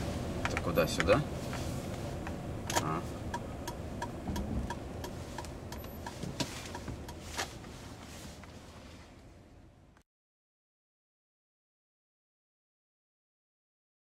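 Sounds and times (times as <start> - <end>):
low running rumble: 0.0 - 10.0
steady clicking in car cabin: 0.4 - 8.7.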